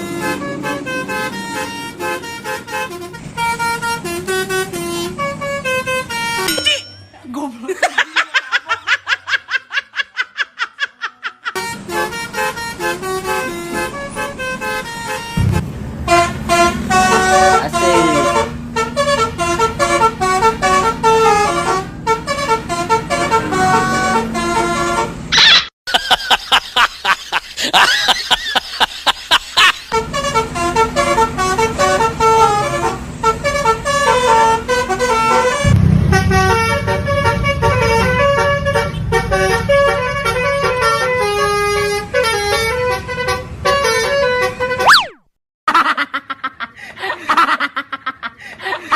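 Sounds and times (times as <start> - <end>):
multi-tone bus air horn: 0.0 - 6.5, 11.6 - 25.3, 29.9 - 45.0
steady low hum: 35.6 - 40.4.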